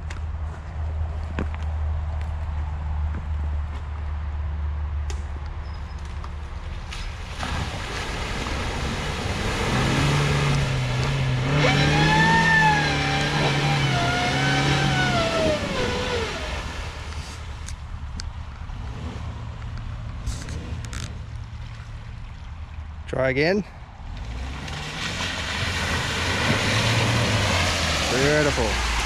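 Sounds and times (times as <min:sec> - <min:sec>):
car engine revving: 0:07.8 - 0:17.4, 0:18.7 - 0:21.2, 0:24.1 - 0:29.0.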